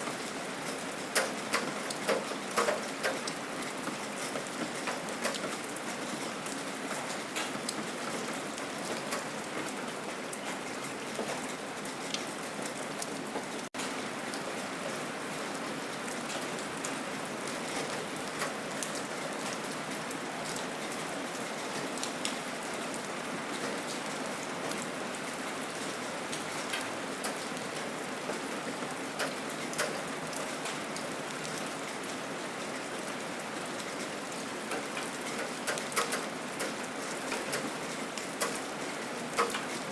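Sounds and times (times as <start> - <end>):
raindrops ticking: 0.0 - 13.9, 17.5 - 20.6, 26.3 - 30.8, 34.6 - 39.9
gentle rain falling: 0.0 - 39.9.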